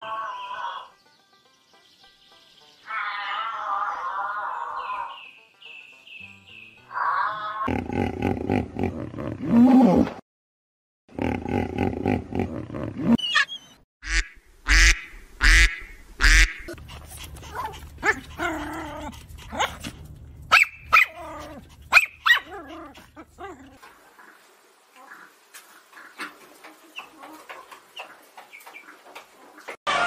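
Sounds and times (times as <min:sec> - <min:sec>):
low animal grunting: 0:07.6 - 0:10.2, 0:11.1 - 0:13.2
small dogs barking and yapping: 0:15.6 - 0:29.8.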